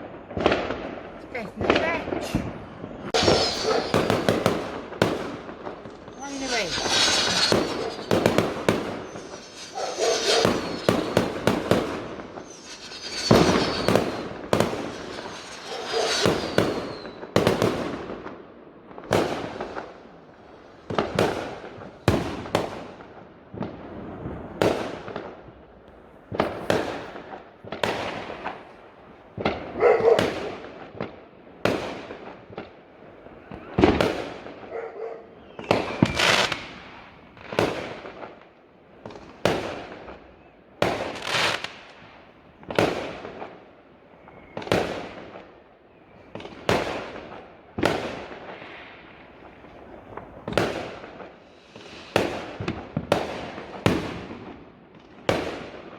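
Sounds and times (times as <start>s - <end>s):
fireworks bangs: 0.0s - 20.2s, 20.9s - 25.4s, 26.3s - 31.1s, 35.6s - 38.3s, 40.8s - 43.5s, 46.3s - 55.7s
fireworks crackling and fizzing: 0.0s - 34.7s, 35.6s - 45.6s, 46.2s - 55.9s.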